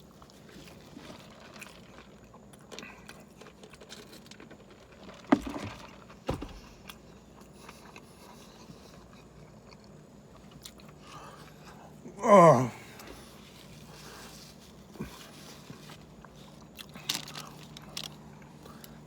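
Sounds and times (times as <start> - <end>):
man chewing food: 0.0 - 19.0.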